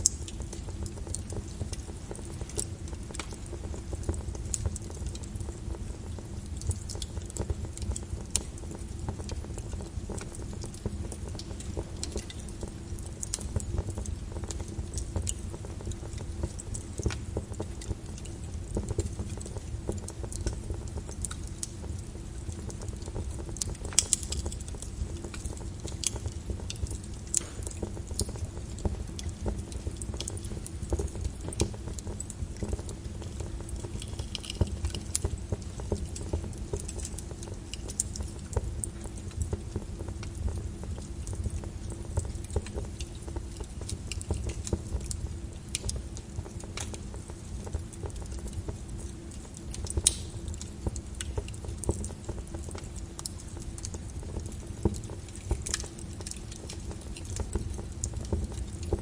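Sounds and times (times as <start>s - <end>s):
low rumble of flames: 0.0s - 59.0s
wood fire crackling and popping: 0.0s - 59.0s.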